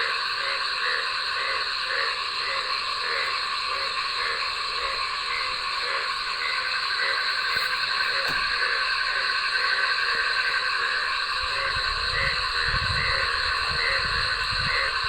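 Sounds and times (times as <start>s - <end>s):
frogs croaking: 0.0s - 15.0s
insects trilling: 0.0s - 15.0s.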